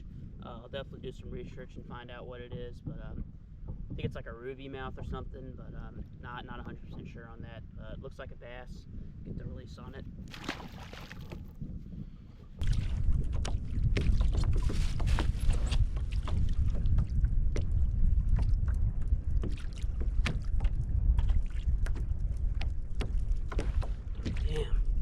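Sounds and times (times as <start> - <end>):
wind buffeting microphone: 0.0 - 25.0
water splashing against kayak hull: 10.3 - 11.6, 12.5 - 25.0.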